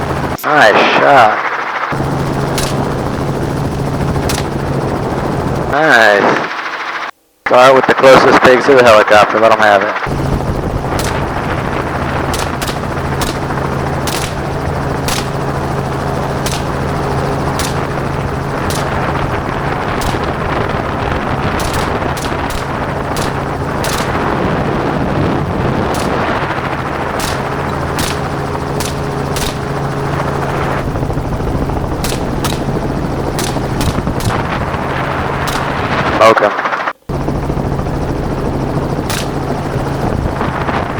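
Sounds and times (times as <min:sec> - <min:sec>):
helicopter running: 0:00.0 - 0:07.1, 0:09.0 - 0:40.9
gunshots: 0:02.5 - 0:03.1, 0:04.2 - 0:04.7, 0:10.1 - 0:30.9, 0:32.0 - 0:36.4, 0:39.1 - 0:39.6.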